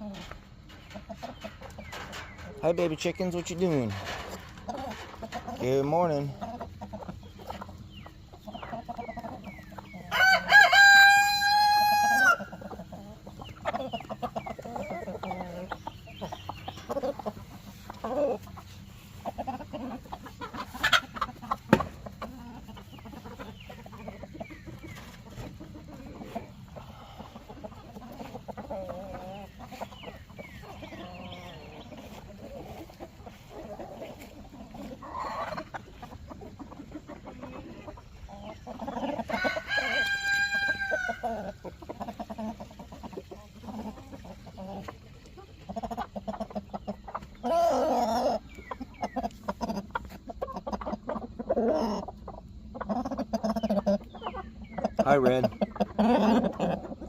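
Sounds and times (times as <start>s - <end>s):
chickens clucking: 0.0s - 57.0s
rooster crowing: 10.1s - 12.5s, 39.2s - 41.4s.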